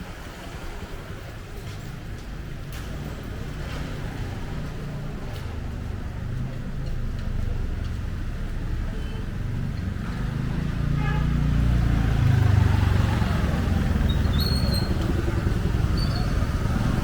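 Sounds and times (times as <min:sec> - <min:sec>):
motorcycle engine passing: 0:10.2 - 0:17.0.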